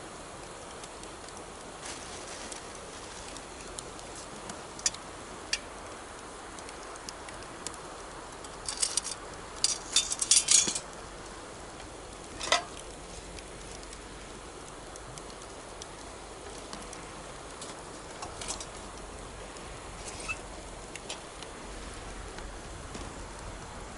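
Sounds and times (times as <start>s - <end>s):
campfire crackling and popping: 0.0s - 23.9s.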